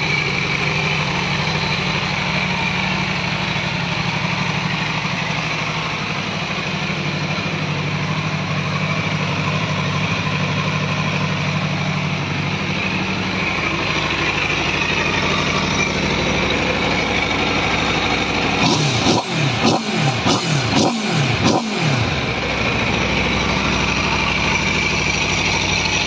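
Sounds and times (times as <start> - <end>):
motorcycle engine idling: 0.0 - 26.0
engine revving: 13.5 - 26.0.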